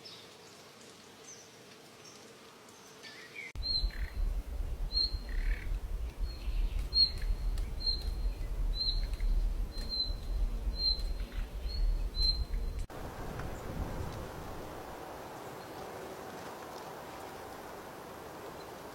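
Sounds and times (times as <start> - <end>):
bird chirping: 3.1 - 12.9
low rumble: 3.6 - 14.6.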